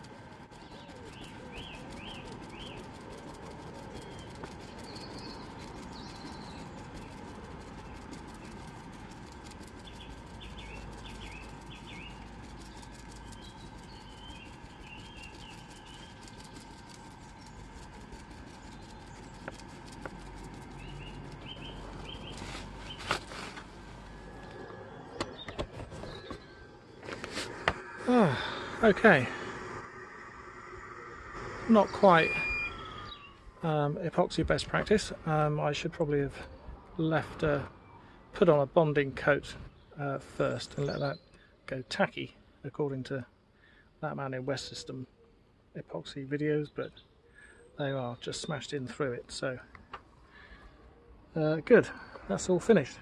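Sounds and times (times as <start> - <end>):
steady background hum: 0.0 - 40.8
small birds chirping: 0.0 - 53.0.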